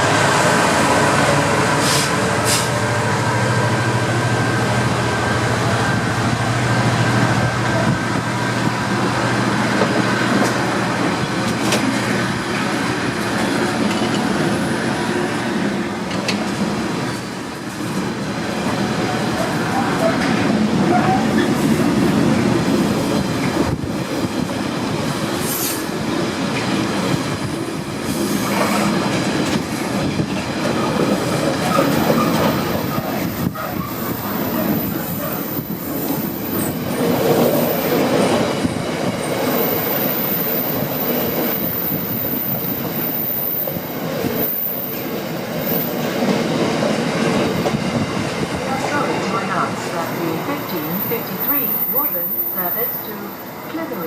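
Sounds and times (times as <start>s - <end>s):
train wheels clattering over rails: 7.7s - 14.8s, 15.6s - 49.1s.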